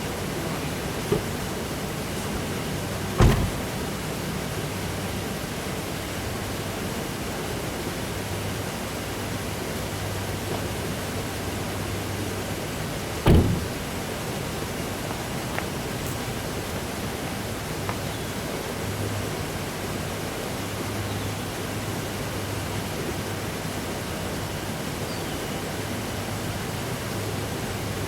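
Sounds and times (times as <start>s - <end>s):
short thumps: 1.0s - 1.9s, 2.7s - 3.8s, 13.2s - 13.8s.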